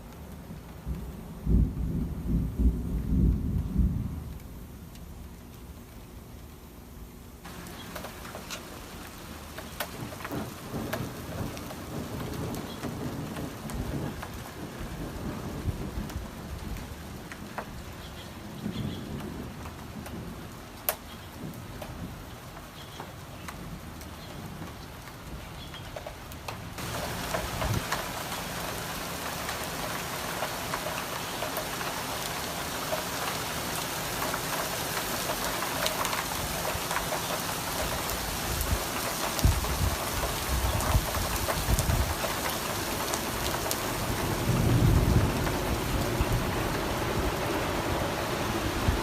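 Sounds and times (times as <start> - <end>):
raindrops pattering close by: 0.0 - 49.0
low rumbles of thunder: 0.4 - 5.3, 9.9 - 17.8, 18.4 - 22.3, 26.8 - 28.7, 38.4 - 49.0
heavy rain pouring: 7.4 - 49.0.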